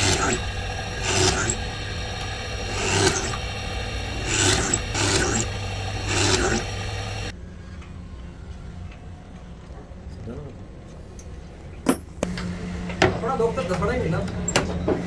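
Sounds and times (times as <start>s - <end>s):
wood being filed by hand: 0.0s - 7.3s
steady low hum: 0.0s - 9.3s.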